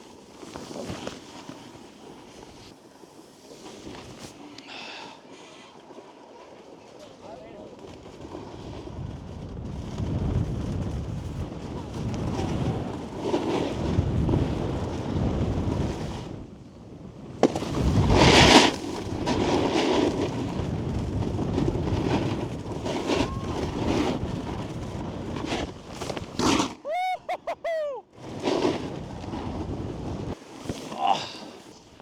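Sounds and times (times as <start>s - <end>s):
snowboard scraping on snow: 0.0s - 26.8s, 28.1s - 32.0s
wind rushing over microphone: 8.3s - 28.0s.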